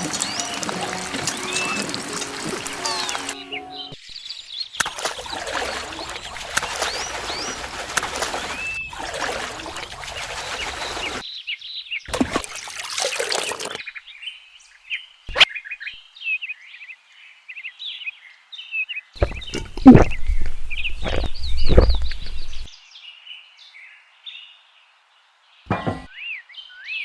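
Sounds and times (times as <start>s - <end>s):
water running: 0.0s - 3.6s, 4.8s - 11.2s, 12.1s - 13.8s
birds chirping: 0.0s - 16.9s.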